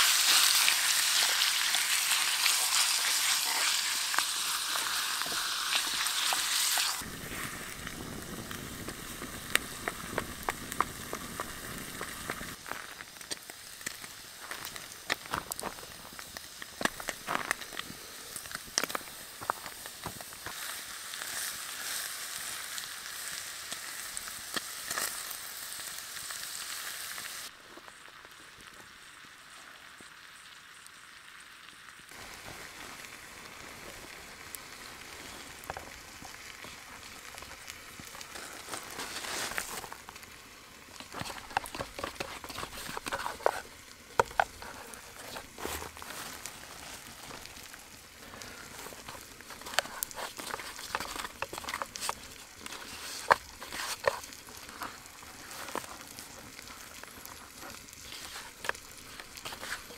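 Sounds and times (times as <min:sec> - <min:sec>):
meat sizzling in a metal pot: 0:00.0 - 0:59.9
crackling clicks: 0:03.4 - 0:20.6, 0:32.1 - 0:59.9.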